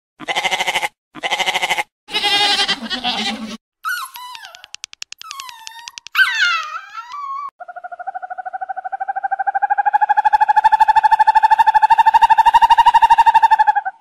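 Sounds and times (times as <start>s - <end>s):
dog whining: 5.2s - 7.5s
owl trilling call: 7.6s - 14.0s.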